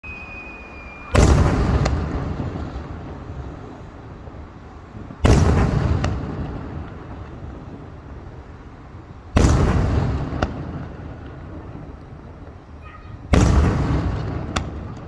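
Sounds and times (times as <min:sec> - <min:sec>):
fireworks shells bursting: 0:00.0 - 0:04.4.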